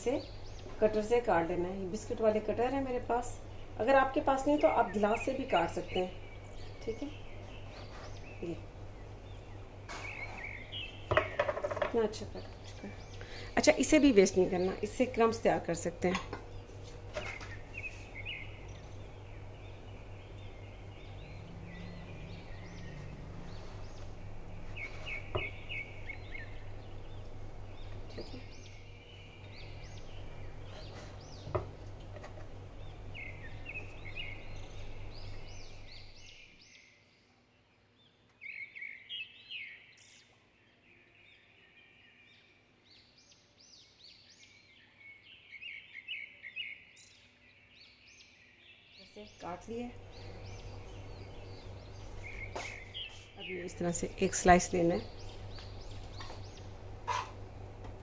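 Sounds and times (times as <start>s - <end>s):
steady low hum: 0.0s - 36.9s, 49.0s - 58.0s
small birds chirping: 0.0s - 58.0s.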